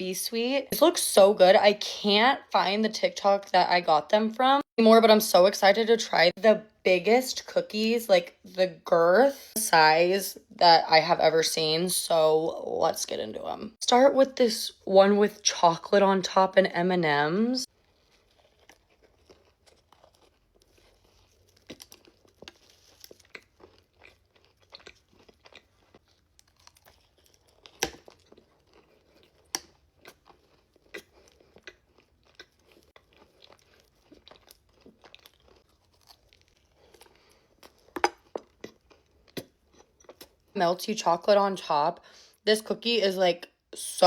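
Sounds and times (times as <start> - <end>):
cookie crunching while chewed: 17.6 - 40.6.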